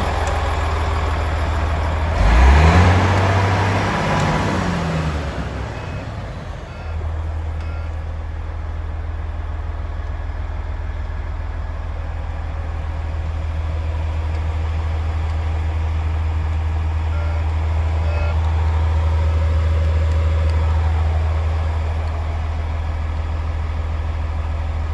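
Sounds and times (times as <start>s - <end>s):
diesel truck engine idling: 0.0s - 24.9s.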